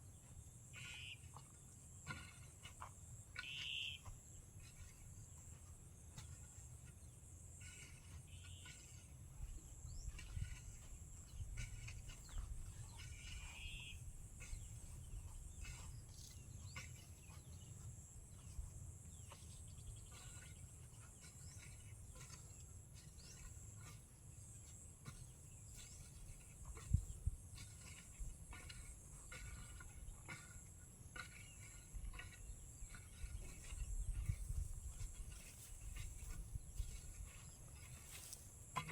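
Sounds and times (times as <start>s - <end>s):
short bird calls: 0.8s - 1.3s, 3.4s - 4.0s, 13.5s - 14.0s.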